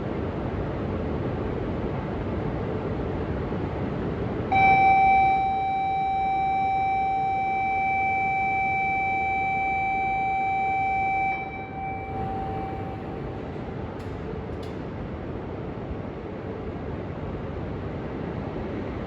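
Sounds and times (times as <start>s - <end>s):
steady high warning tone: 4.5s - 14.8s.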